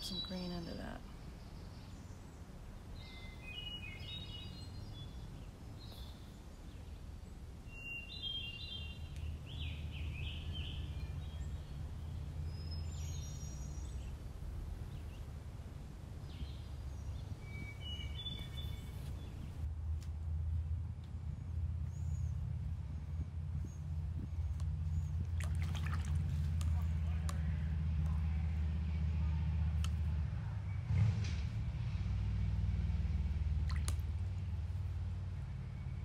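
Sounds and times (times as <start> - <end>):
small birds chirping: 0.0 - 15.4, 16.2 - 19.7, 21.0 - 27.7
low outdoor rumble: 0.0 - 36.0.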